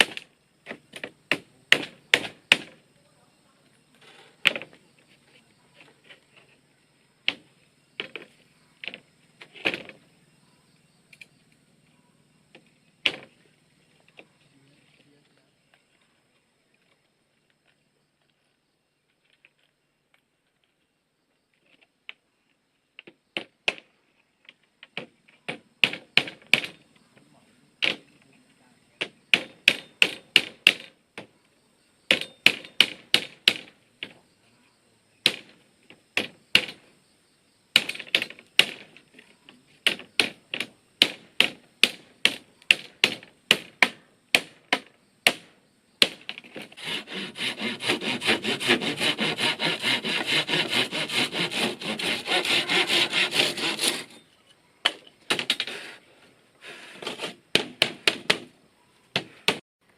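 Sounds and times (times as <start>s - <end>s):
hand tool knocking bamboo: 46.0s - 54.2s.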